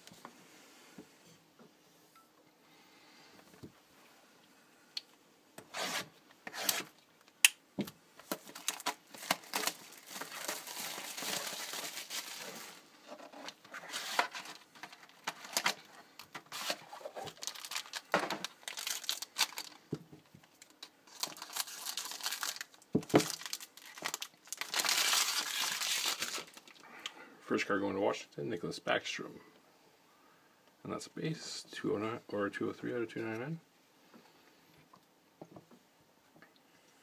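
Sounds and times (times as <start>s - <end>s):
card pack wrapper tearing: 5.7s - 6.9s, 8.3s - 12.7s, 13.9s - 19.8s, 20.6s - 26.8s
foil plastic rustling: 8.3s - 12.9s, 13.5s - 19.8s, 20.4s - 26.8s.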